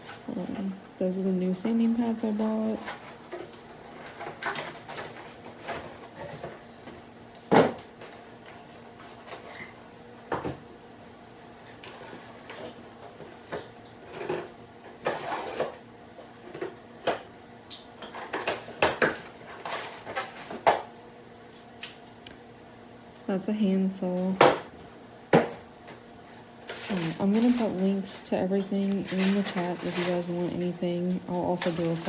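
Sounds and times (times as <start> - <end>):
faint steady hum: 0.0 - 32.0
packaging rustling: 26.3 - 32.0.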